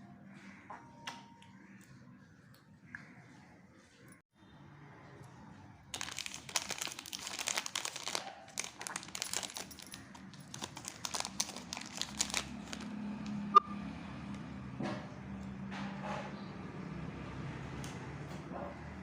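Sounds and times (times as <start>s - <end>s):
wrapper crinkling and tearing: 5.9s - 13.0s.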